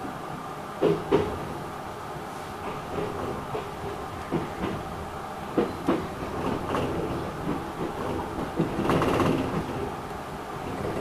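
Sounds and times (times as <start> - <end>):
electric train running: 2.6 - 11.0
wheels clacking over rail joints: 2.6 - 11.0.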